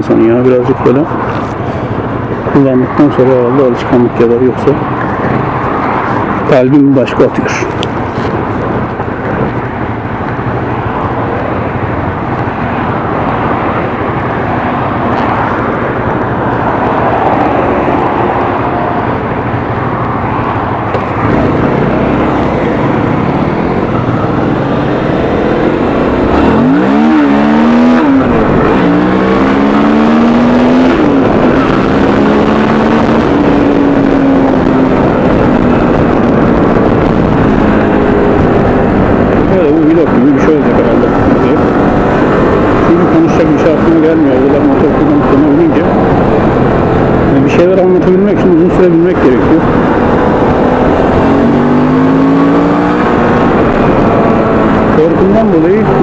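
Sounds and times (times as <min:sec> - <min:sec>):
wind rush: 0:00.0 - 0:56.0
motorcycle engine: 0:07.3 - 0:56.0.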